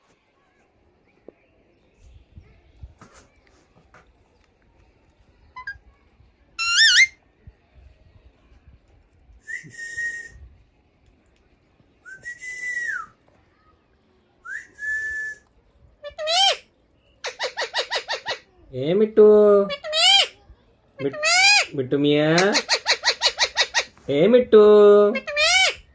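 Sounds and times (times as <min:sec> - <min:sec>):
parakeet chattering squawks: 0:06.6 - 0:07.2, 0:16.0 - 0:16.6, 0:17.2 - 0:18.5, 0:19.6 - 0:20.4, 0:21.0 - 0:24.0, 0:25.1 - 0:25.9
parakeet whistled calls: 0:06.6 - 0:07.2.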